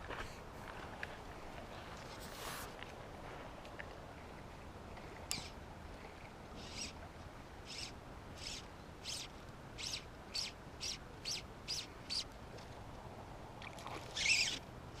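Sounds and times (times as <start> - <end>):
bird chirping: 6.6 - 7.0, 7.7 - 12.3.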